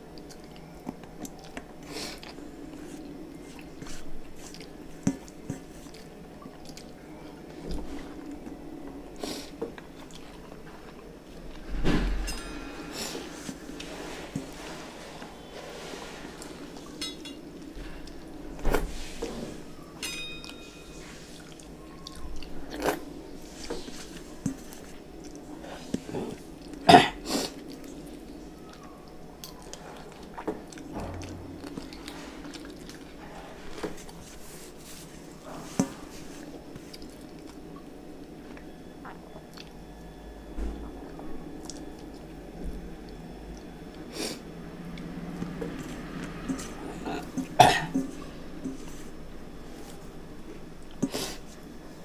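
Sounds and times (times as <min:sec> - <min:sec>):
wet chewing: 0:00.1 - 0:07.0.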